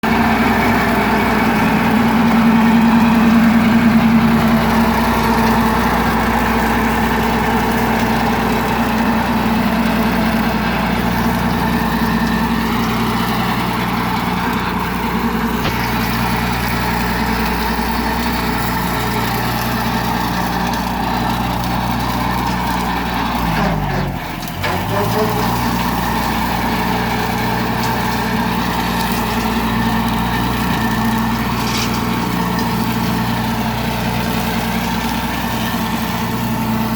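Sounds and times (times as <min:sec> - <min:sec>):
tractor engine idling: 0:00.0 - 0:36.9.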